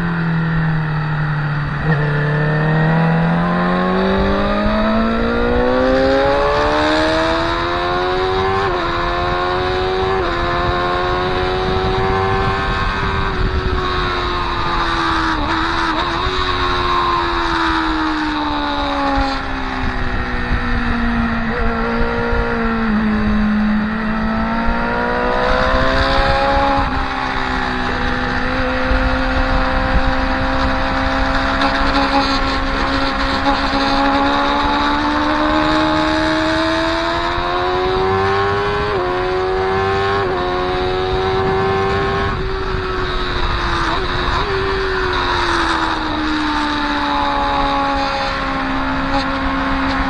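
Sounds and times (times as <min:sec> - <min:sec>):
heavy wind rush: 0:00.0 - 0:50.0
motorcycle engine at speed: 0:00.0 - 0:50.0.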